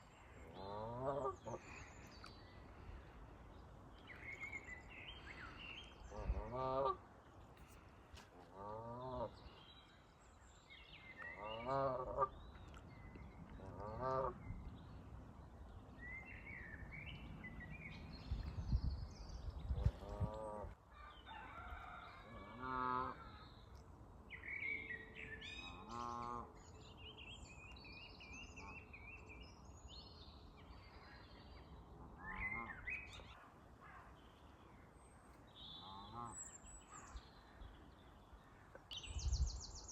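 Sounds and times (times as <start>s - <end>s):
small birds singing: 23.2s - 39.9s.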